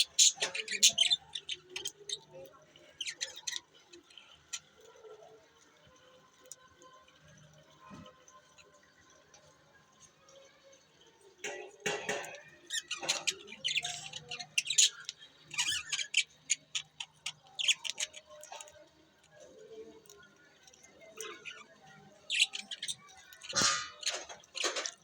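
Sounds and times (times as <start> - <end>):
budgies chirping and chattering: 0.0 - 5.5, 11.4 - 25.0.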